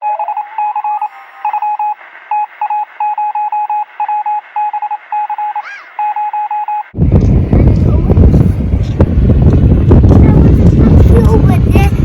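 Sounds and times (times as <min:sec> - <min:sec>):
rapid electronic beeping: 0:00.0 - 0:07.0.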